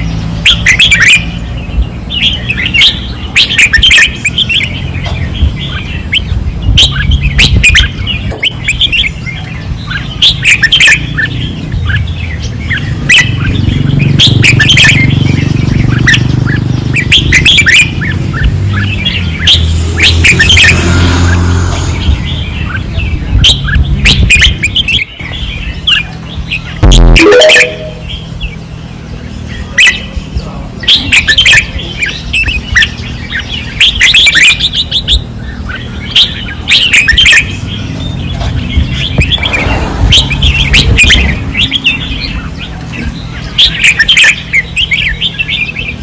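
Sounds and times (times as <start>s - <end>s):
birds chirping: 0.0s - 46.0s
steady low rumble: 37.6s - 43.6s.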